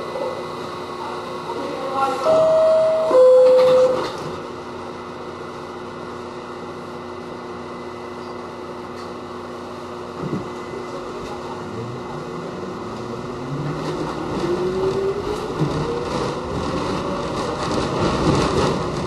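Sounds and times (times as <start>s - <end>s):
subway car hum: 0.0s - 19.0s
two-tone door chime: 2.2s - 4.2s.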